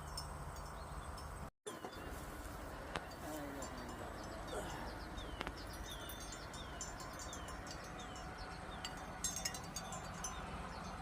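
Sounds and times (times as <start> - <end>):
bird chirping: 0.0 - 2.3, 3.3 - 11.0
low steady rumble: 0.0 - 11.0.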